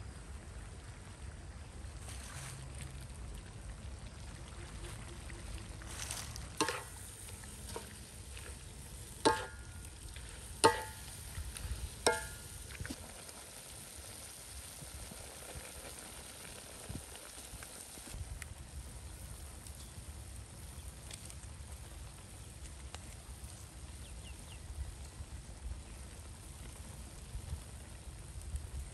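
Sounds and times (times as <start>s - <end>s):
meat sizzling in a wok: 5.7s - 28.9s
spatula clanging on wok: 6.6s - 7.0s, 9.2s - 9.7s, 10.6s - 11.2s, 12.0s - 12.6s.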